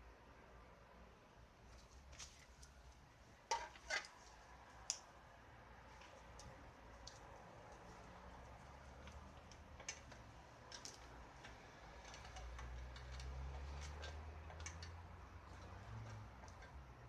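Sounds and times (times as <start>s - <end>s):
light clicks and taps: 6.0s - 16.9s.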